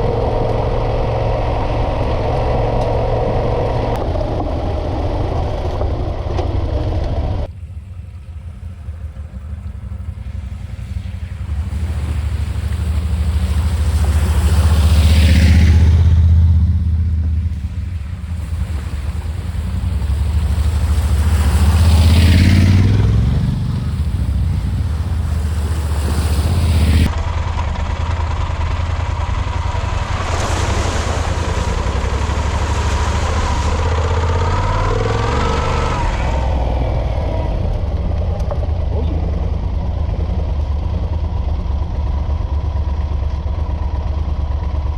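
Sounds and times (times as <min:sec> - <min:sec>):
motorcycle engine running: 0:00.0 - 0:44.9
wind noise: 0:09.9 - 0:27.2.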